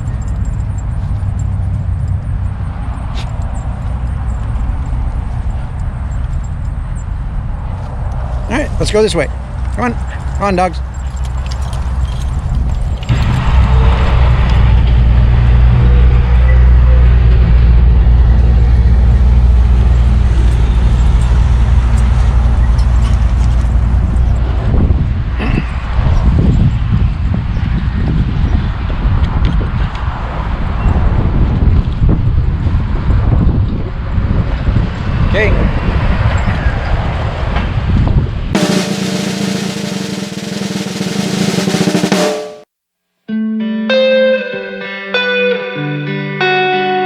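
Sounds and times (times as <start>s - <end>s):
held musical tones: 38.6s - 42.6s
snare drum roll: 38.6s - 42.6s.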